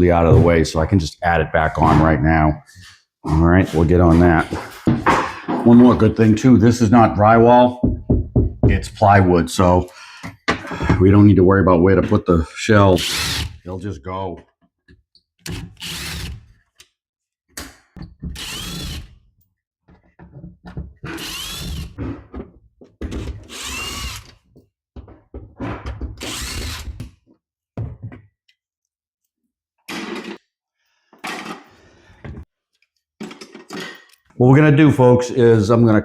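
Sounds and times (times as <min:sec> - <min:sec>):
power drill running: 0:18.4 - 0:19.1, 0:21.2 - 0:21.9, 0:23.5 - 0:24.3, 0:26.2 - 0:26.9.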